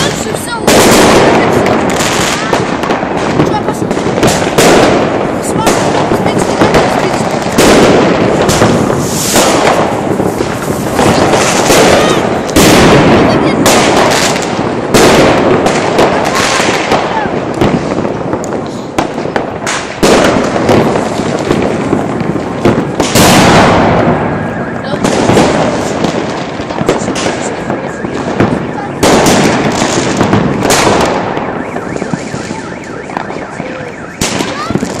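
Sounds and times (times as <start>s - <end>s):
fireworks bangs and crackling: 0.0s - 35.0s
car alarm sweeping tone: 27.6s - 29.2s, 31.2s - 34.7s.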